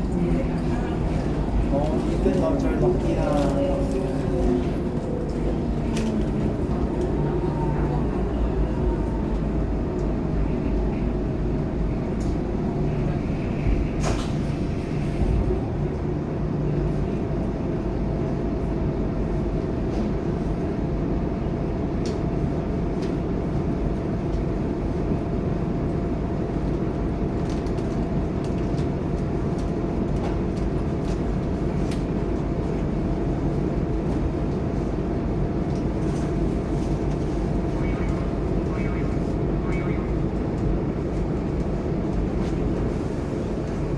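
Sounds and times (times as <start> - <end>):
bus engine and road rumble: 0.0 - 43.9
faint steady whine: 37.3 - 40.7.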